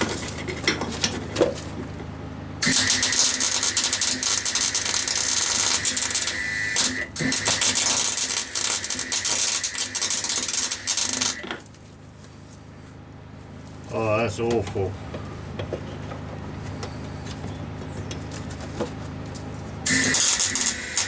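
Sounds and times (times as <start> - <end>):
generator humming: 0.0 - 21.0
welder arc crackling: 2.6 - 11.5, 19.9 - 21.0.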